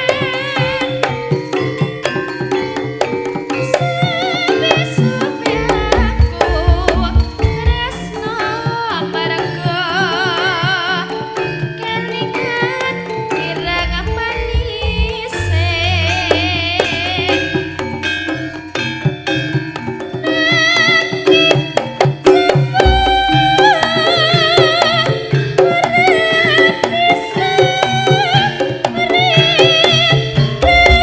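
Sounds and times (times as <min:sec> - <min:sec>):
wavering vibrato melody: 0:00.0 - 0:31.0
hand drum strokes: 0:04.0 - 0:09.0, 0:12.8 - 0:31.0
deep low notes: 0:13.6 - 0:16.7.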